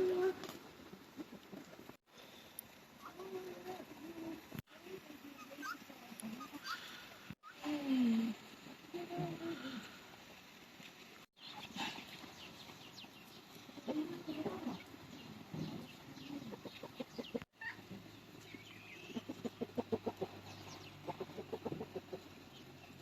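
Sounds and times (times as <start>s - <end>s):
chickens clucking: 11.4s - 23.0s.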